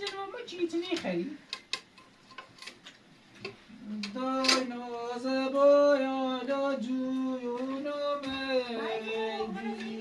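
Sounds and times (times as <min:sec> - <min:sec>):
person singing slow tune: 0:03.7 - 0:10.0.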